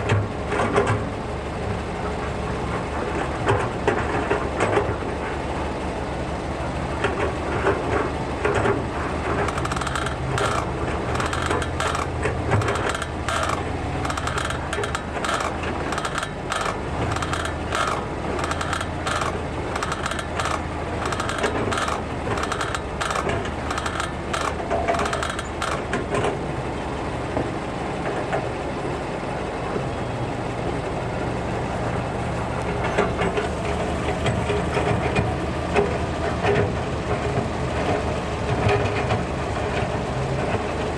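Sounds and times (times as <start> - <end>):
engine idling: 0.0 - 40.9
brake caliper squeaking: 8.7 - 26.1.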